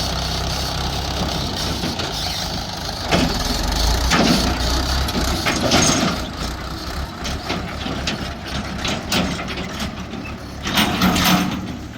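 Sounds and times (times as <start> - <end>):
heavy diesel engine running: 0.0 - 11.9
metallic clanks and scrapes: 3.1 - 6.3, 7.2 - 11.9.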